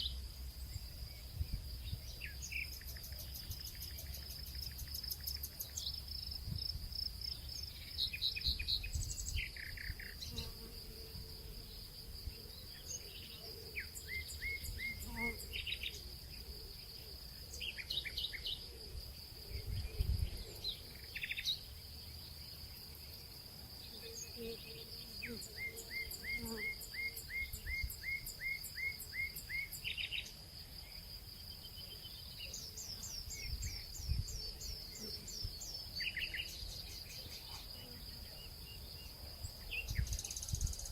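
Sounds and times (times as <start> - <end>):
high insect trill: 0.0 - 40.9.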